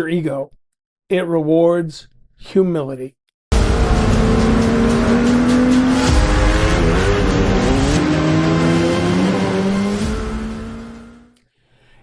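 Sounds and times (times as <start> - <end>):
vehicle engine revving high: 3.5 - 11.3.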